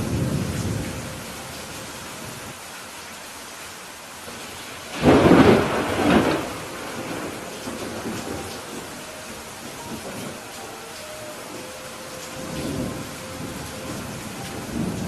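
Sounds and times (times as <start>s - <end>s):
thunder clap and rumble: 0.0s - 1.2s, 4.9s - 10.4s, 12.2s - 15.0s
steady rain: 0.0s - 15.0s.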